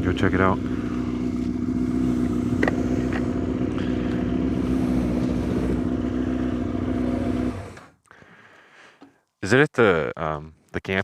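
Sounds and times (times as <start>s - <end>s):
motorcycle engine idling: 0.0s - 7.8s.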